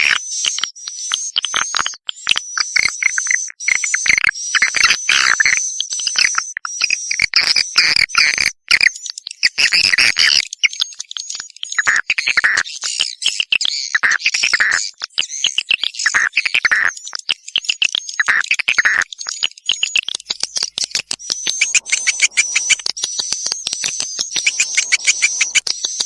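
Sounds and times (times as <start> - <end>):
swiftlets chittering and chirping: 20.0 - 26.0.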